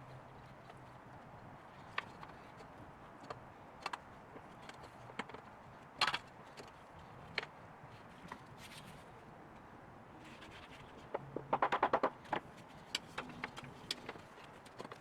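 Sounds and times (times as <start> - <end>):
knocks and taps on wood: 11.1 - 12.4.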